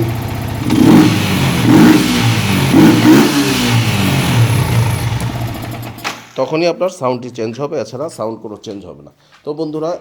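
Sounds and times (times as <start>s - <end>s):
motorcycle engine revving over idle: 0.0s - 6.0s.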